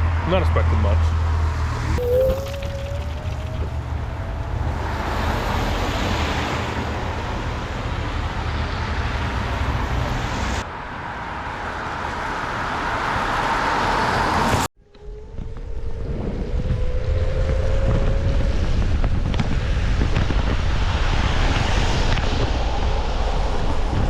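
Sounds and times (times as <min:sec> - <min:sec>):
road noise: 0:00.0 - 0:24.0
wind buffeting microphone: 0:01.9 - 0:10.6, 0:14.3 - 0:24.0
electric scooter motor whine: 0:02.0 - 0:07.0.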